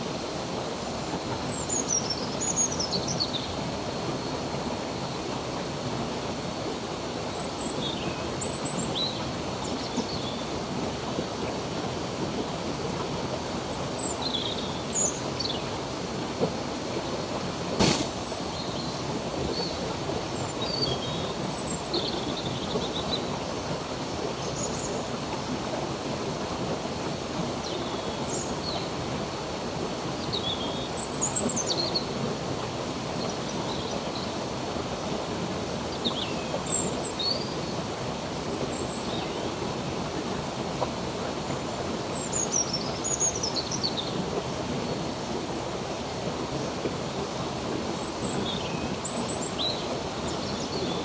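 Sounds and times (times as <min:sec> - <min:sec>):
stream water running: 0:00.0 - 0:51.0
sharp click: 0:17.8 - 0:18.2.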